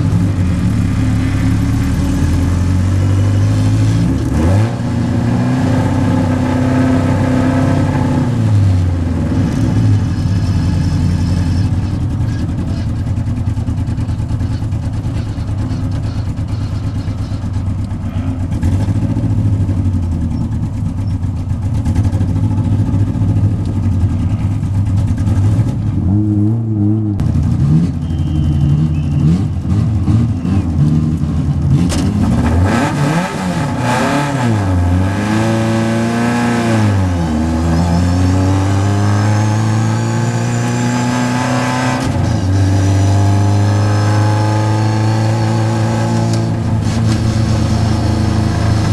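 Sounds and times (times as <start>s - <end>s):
race car engine revving: 0.0s - 13.0s, 21.7s - 48.9s.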